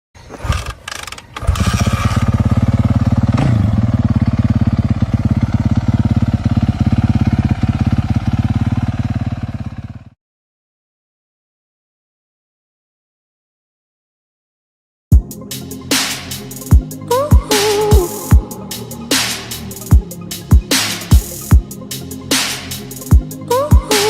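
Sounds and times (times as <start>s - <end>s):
motorcycle engine running: 0.6s - 10.2s, 16.7s - 21.7s.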